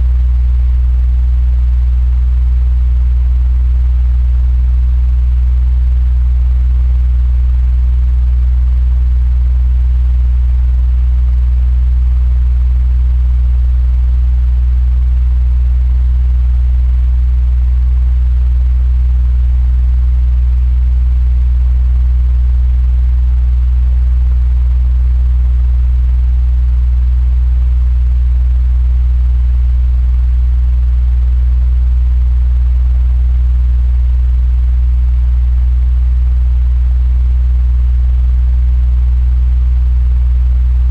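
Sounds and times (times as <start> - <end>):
electric fan running: 0.0 - 5.6.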